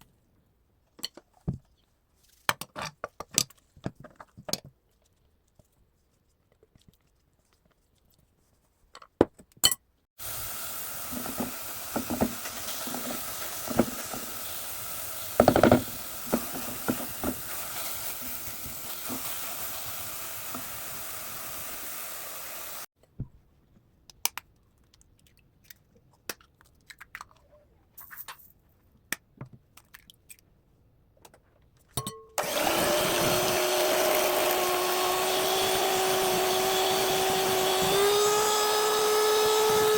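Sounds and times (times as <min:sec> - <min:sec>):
kitchen appliance motor running: 0:10.2 - 0:22.9, 0:32.4 - 0:39.9.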